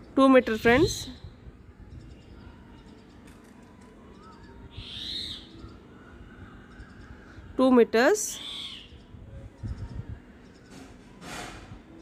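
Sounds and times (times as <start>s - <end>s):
birds calling: 4.1s - 5.9s, 8.2s - 9.1s.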